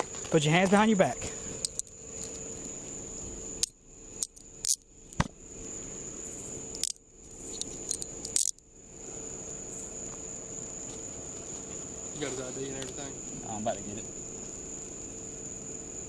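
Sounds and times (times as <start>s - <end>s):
handcuffs clicking shut: 1.6s - 2.4s, 6.8s - 8.6s.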